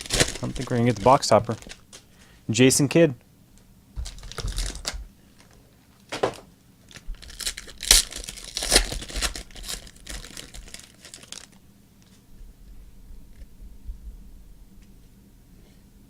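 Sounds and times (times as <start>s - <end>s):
wrapper tearing and crinkling: 0.0s - 2.1s, 4.0s - 5.6s, 6.8s - 11.6s.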